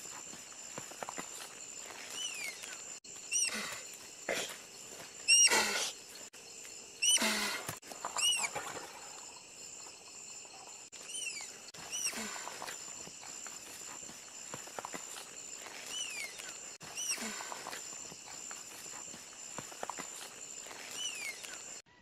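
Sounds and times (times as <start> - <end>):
tapir shrill squeaks: 5.3 - 5.7, 7.0 - 7.6, 8.2 - 8.6, 11.1 - 12.3
tapir rough blowing: 7.0 - 8.8.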